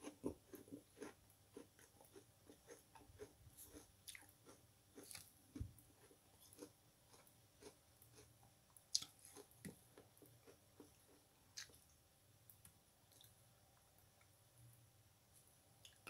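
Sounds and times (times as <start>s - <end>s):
person chewing foam sponge: 0.0s - 11.8s.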